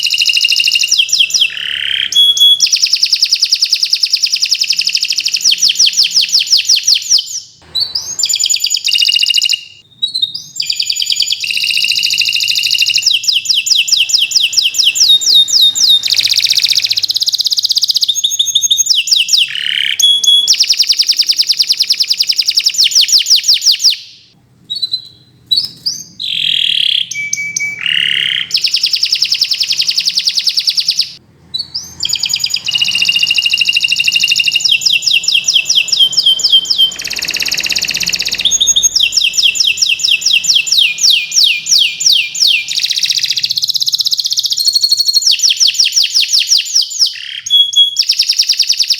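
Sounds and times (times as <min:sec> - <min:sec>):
canary singing trills: 0:00.0 - 0:48.9.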